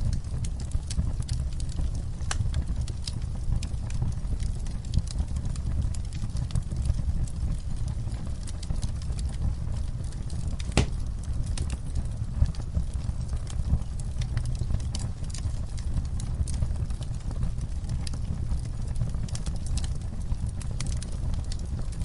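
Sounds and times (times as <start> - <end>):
campfire flames rumbling: 0.0 - 22.0
fire crackling and popping: 0.0 - 22.0.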